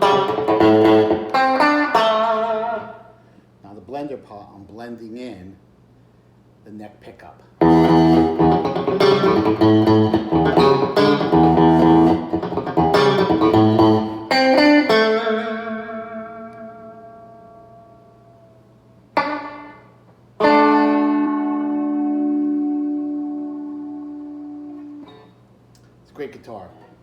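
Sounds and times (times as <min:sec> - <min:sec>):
clean electric guitar chords: 0:00.0 - 0:03.0, 0:07.6 - 0:25.3.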